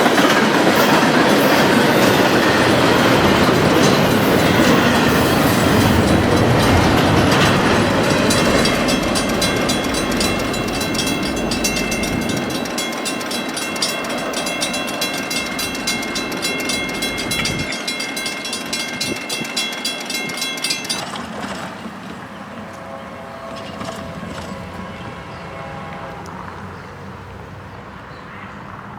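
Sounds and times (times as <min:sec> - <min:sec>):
train wheels clicking over rail joints: 0:00.0 - 0:22.2
high-pitched ringing: 0:01.8 - 0:21.2.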